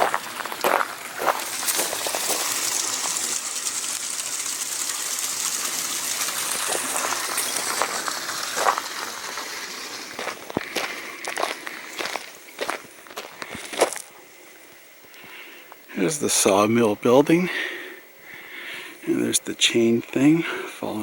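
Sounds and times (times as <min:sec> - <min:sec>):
footsteps on gravel: 0:00.0 - 0:03.3, 0:06.4 - 0:14.1
water flowing: 0:00.0 - 0:12.7.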